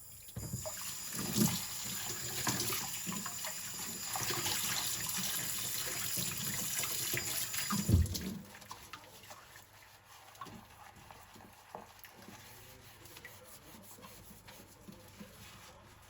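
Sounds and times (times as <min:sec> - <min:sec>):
tap running into sink: 0:00.3 - 0:08.5.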